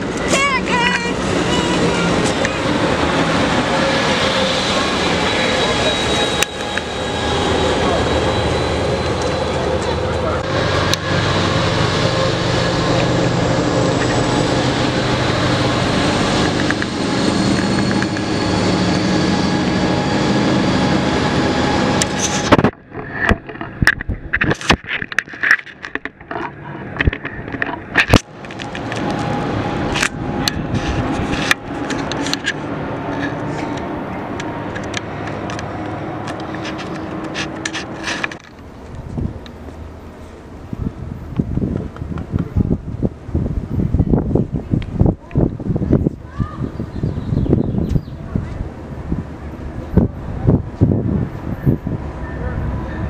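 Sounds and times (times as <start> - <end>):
distant train approaching: 0.0 - 23.8, 26.2 - 53.0
train passing with rumble: 0.0 - 24.4, 25.9 - 53.0
sharp clicks and knocks: 22.0 - 29.3.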